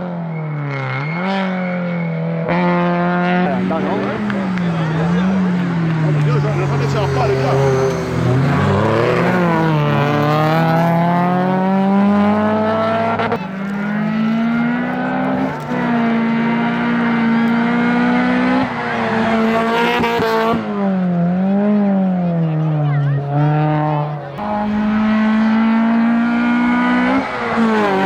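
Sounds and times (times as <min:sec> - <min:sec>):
car engine accelerating hard: 0:00.0 - 0:28.0.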